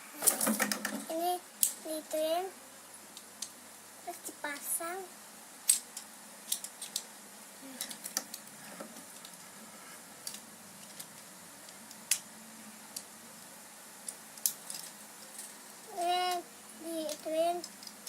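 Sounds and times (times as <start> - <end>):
plastic toy parts clicking: 5.6 - 7.1, 10.2 - 12.2, 14.0 - 15.5, 17.1 - 18.0.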